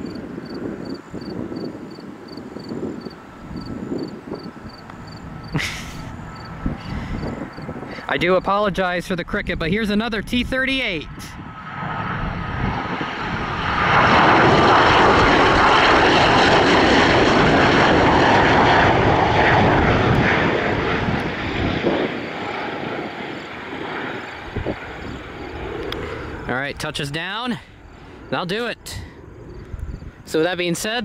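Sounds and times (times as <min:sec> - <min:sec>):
cricket chirping: 0:00.0 - 0:08.0, 0:22.9 - 0:30.6
jet engines rushing: 0:00.0 - 0:31.0.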